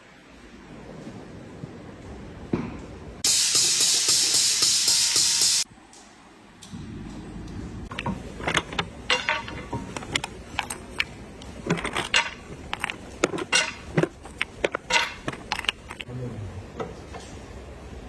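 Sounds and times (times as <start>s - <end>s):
low steady hum: 6.5s - 18.0s
metal tools clinking and clanking: 7.9s - 16.1s.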